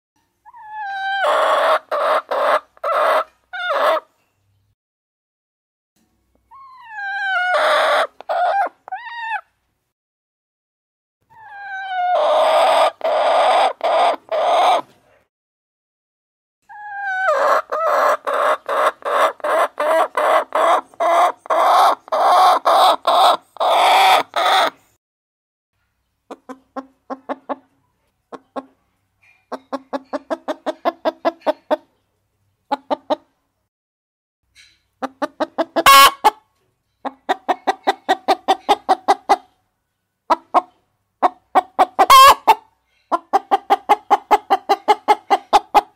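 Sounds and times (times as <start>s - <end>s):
hens clucking: 0.5s - 4.1s, 6.8s - 9.4s, 11.4s - 14.9s, 16.7s - 24.8s, 26.3s - 28.8s, 29.5s - 32.0s, 32.7s - 33.3s, 35.0s - 39.6s, 40.3s - 45.9s.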